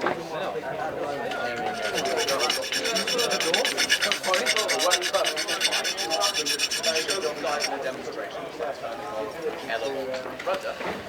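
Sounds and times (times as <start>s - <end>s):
hand file rasping on metal: 1.4s - 7.8s.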